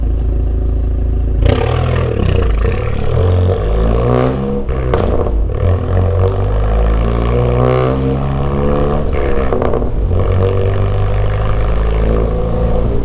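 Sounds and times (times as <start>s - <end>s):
car exhaust accelerating hard: 0.0s - 13.0s.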